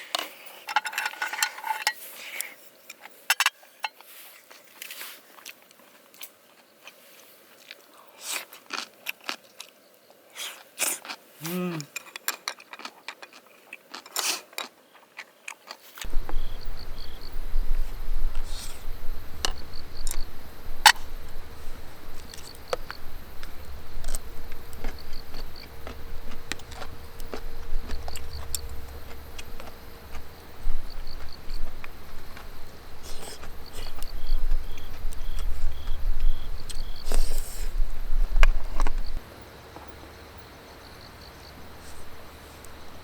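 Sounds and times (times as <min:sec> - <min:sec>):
insect chirping high pips: 0:16.0 - 0:43.0
low rumble: 0:16.1 - 0:39.2.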